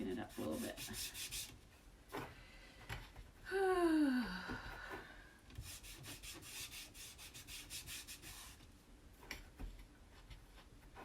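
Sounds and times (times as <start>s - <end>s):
cloth rag rubbing on board: 0.0s - 1.6s, 5.6s - 8.7s.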